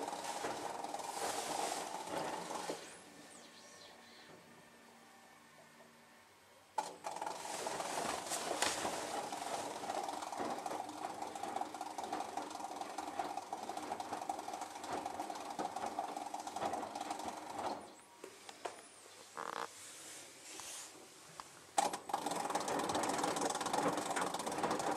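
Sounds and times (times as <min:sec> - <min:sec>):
washing machine buzzing rattle: 0:00.0 - 0:03.4, 0:06.8 - 0:18.0, 0:21.8 - 0:24.9.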